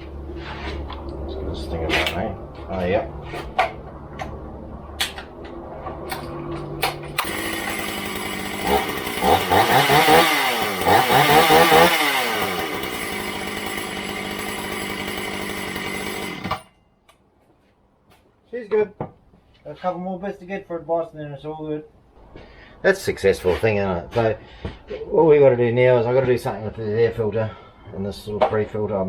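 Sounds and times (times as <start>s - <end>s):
chainsaw revving: 6.8s - 16.7s.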